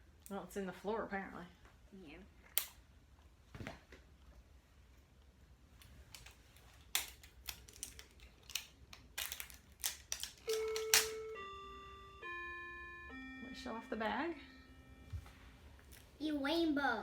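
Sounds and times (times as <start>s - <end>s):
packaging crinkling: 6.1s - 11.2s.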